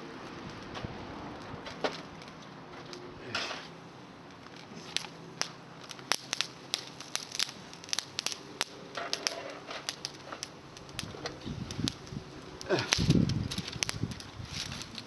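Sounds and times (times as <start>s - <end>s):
bonfire crackling and popping: 0.0s - 15.0s.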